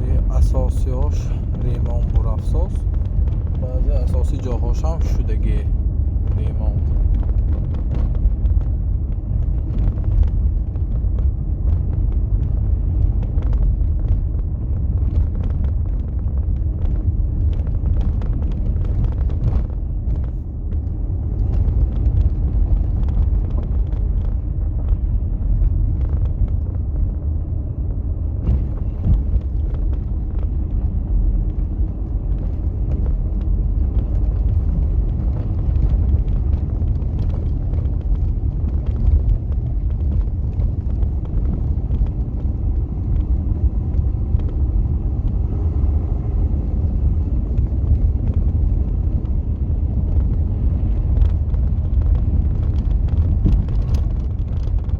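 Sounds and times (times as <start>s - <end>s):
vehicle and road rumble: 0.0s - 54.9s.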